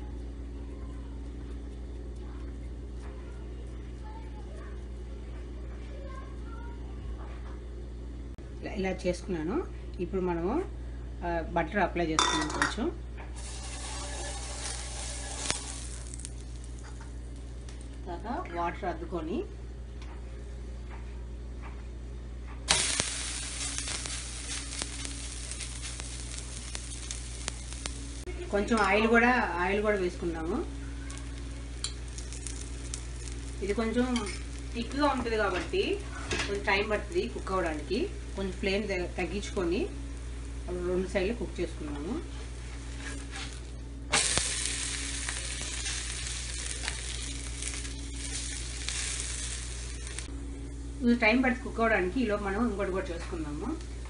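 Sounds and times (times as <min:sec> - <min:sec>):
dough sizzling on a griddle: 0:13.3 - 0:18.0, 0:22.7 - 0:50.3
small crackles: 0:13.3 - 0:18.1, 0:22.6 - 0:40.7, 0:41.6 - 0:50.3.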